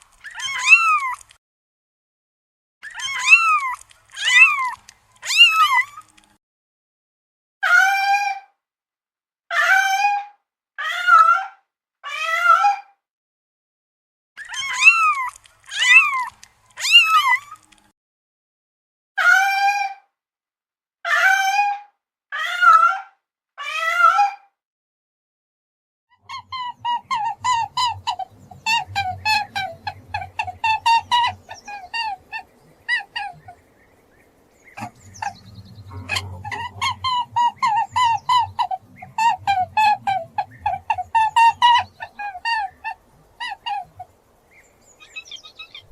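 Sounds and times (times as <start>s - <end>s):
high-pitched animal calls: 0.0s - 1.3s, 2.8s - 6.2s, 14.4s - 17.8s, 26.2s - 33.7s, 34.7s - 44.3s, 44.9s - 45.9s
steady low hum: 26.3s - 45.9s.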